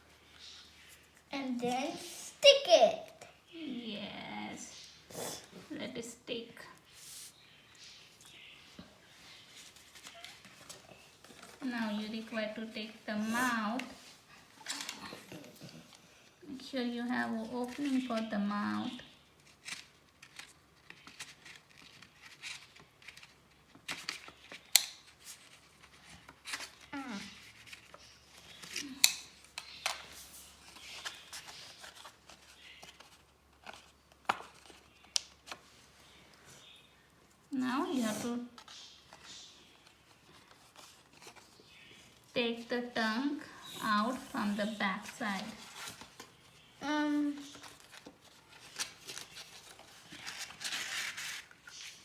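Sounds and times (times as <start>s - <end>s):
paper rustling: 9.2s - 15.4s, 17.2s - 36.4s, 37.9s - 42.3s, 43.0s - 52.0s
paper being handled: 43.8s - 52.0s.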